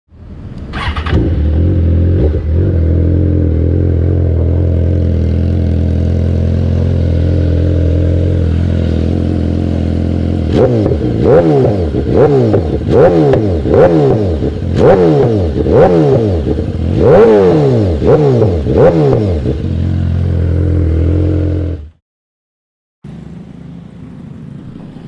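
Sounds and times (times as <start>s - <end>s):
motorcycle engine idling and revving: 0.2s - 22.0s, 23.0s - 25.0s.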